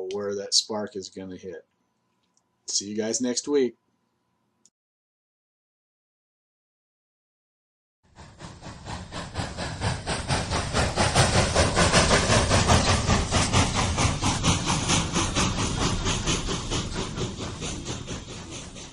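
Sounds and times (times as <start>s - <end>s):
steam locomotive chuffing: 8.1s - 18.9s
steam hiss: 8.2s - 18.9s.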